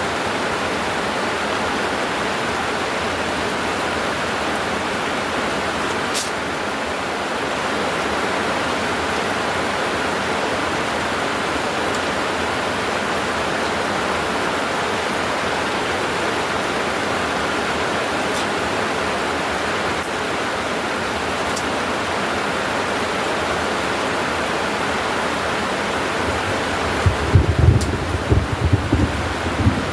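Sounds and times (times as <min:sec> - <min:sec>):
heavy rain pouring: 0:00.0 - 0:29.9.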